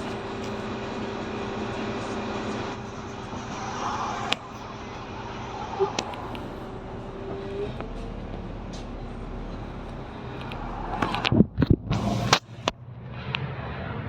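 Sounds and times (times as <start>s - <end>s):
bus engine and road noise: 0.0s - 14.0s
faint rising tone: 3.1s - 8.2s, 9.2s - 12.6s.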